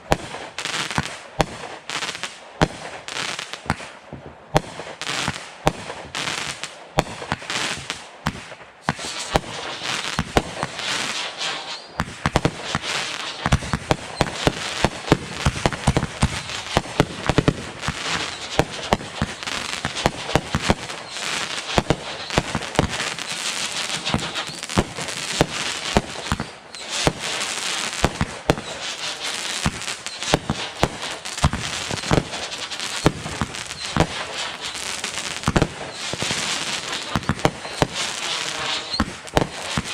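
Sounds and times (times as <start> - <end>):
fireworks cracking and banging: 0.0 - 39.9.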